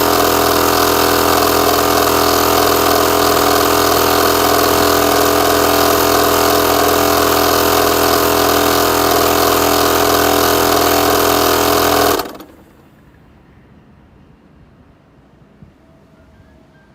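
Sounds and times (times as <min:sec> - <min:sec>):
air compressor running: 0:00.0 - 0:12.9.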